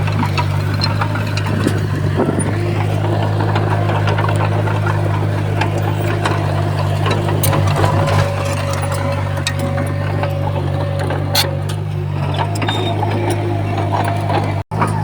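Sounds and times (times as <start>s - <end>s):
bulldozer diesel engine running: 0.0s - 15.0s
scattered clicks and knocks: 0.0s - 15.0s.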